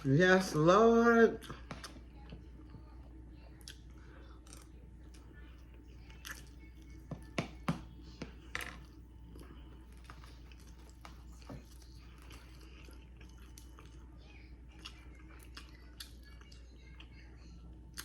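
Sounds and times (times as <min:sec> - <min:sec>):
person chewing food: 0:01.4 - 0:18.0.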